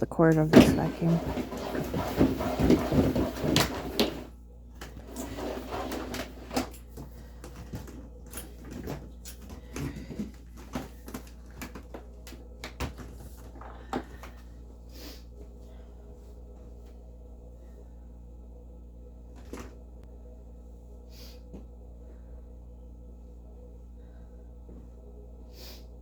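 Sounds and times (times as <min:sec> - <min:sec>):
rustling and knocking: 0:00.5 - 0:12.1.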